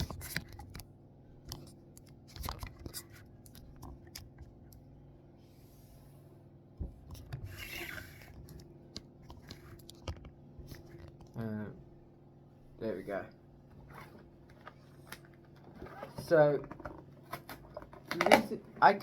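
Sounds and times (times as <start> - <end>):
cardboard scratching and rubbing: 7.4 - 8.4.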